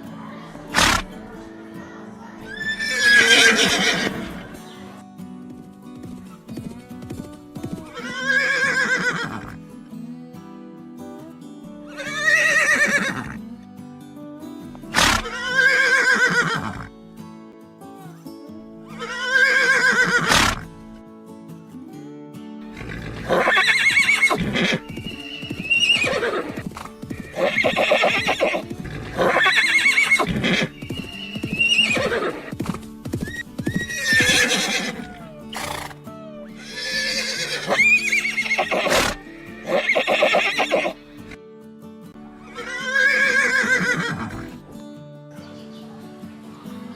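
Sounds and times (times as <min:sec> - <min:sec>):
background music: 0:00.0 - 0:46.9
horse neighing: 0:00.7 - 0:01.2, 0:02.5 - 0:04.6, 0:07.9 - 0:09.6, 0:11.9 - 0:13.4, 0:14.9 - 0:16.9, 0:18.9 - 0:20.7, 0:22.7 - 0:32.6, 0:33.2 - 0:41.3, 0:42.5 - 0:44.6.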